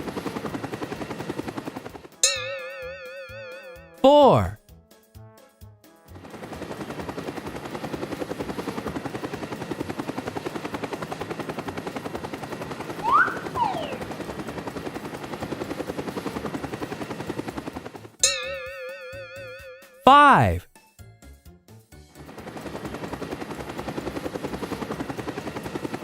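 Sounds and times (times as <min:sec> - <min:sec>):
rising and falling whistle: 0:13.0 - 0:14.1.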